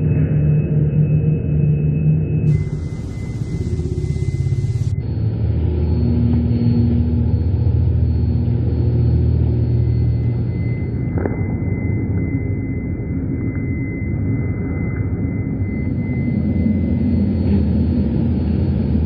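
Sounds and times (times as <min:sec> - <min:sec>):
faint high tone: 0:02.5 - 0:05.0
low steady rumble: 0:02.5 - 0:19.0.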